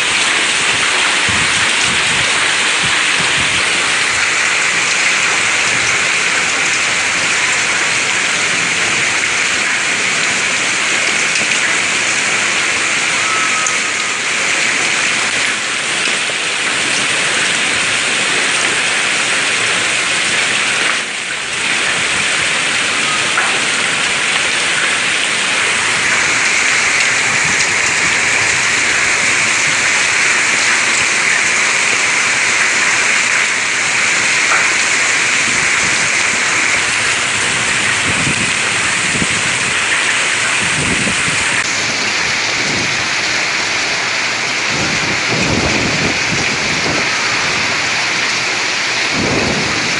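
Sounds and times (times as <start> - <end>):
heavy rain pouring: 0.0 - 49.9.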